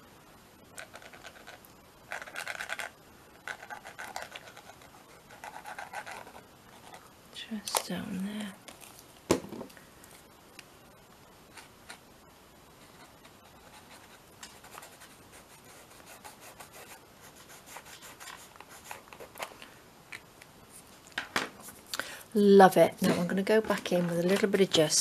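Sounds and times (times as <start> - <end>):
art tool rubbing on paper: 0.8 - 7.0, 12.8 - 19.4.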